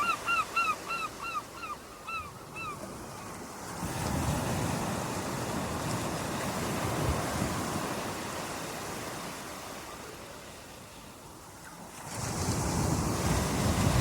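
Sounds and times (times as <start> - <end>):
ocean waves breaking: 0.0 - 14.0
wind on microphone: 12.2 - 14.0.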